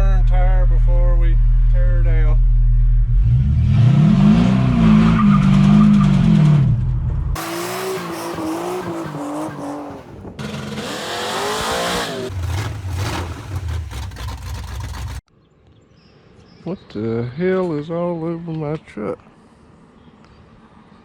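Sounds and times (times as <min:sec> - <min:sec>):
engine revving hard: 0:03.2 - 0:06.6, 0:07.4 - 0:15.2
tires squealing: 0:04.7 - 0:06.6, 0:07.4 - 0:15.2.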